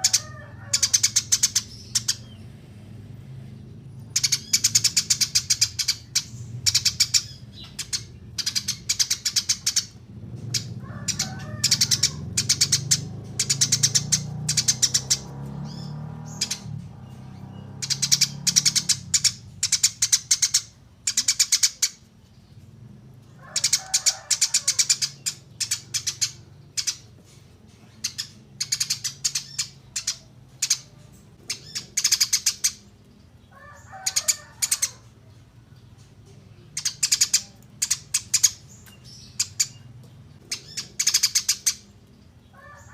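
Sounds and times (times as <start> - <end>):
lower chattering bird call: 0.0 - 2.7, 3.4 - 42.9
small songbirds trilling: 0.0 - 42.9.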